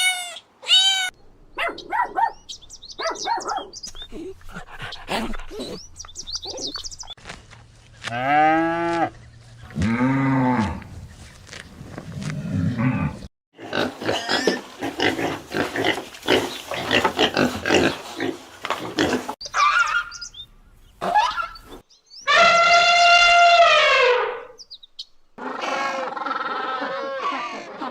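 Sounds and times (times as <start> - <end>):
drawn-out rising and falling animal calls: 14.4 - 27.9.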